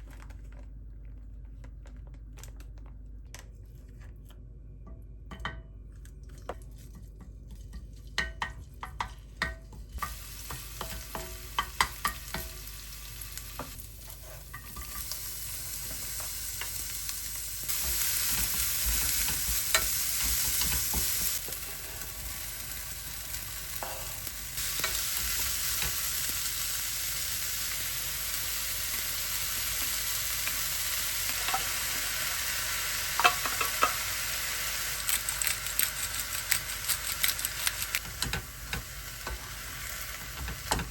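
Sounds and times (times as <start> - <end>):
food sizzling in a pan: 10.0 - 40.9.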